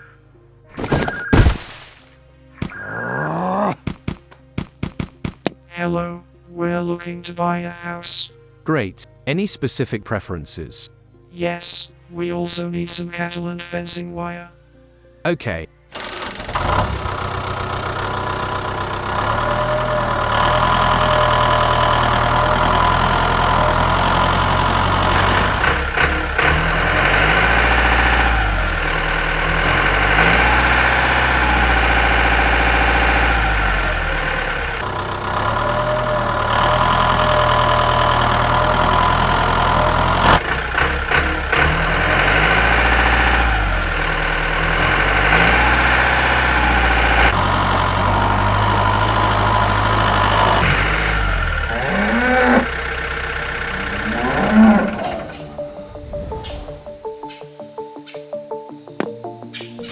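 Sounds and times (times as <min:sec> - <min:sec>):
tractor engine running: 0:00.7 - 0:05.6, 0:15.9 - 0:57.2.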